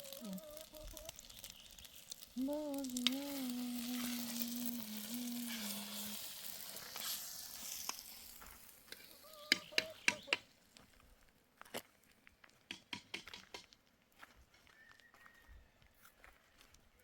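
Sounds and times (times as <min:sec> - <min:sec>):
food sizzling: 0:00.0 - 0:10.5
low buzzing tone: 0:02.4 - 0:06.2
sharp clicks: 0:12.7 - 0:13.7.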